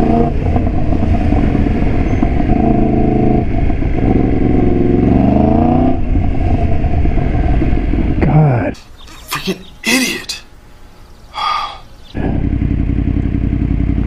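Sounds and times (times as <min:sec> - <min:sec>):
motorcycle engine accelerating: 0:00.0 - 0:08.4, 0:12.1 - 0:14.0
wind rushing over microphone: 0:00.0 - 0:09.0.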